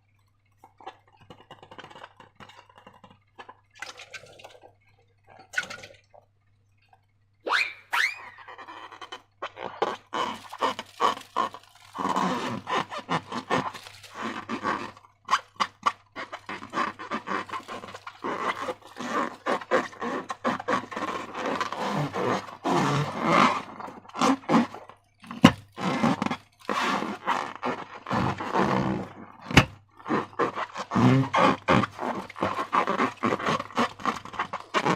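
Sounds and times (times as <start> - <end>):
slime squelching and crackling: 8.4 - 34.9.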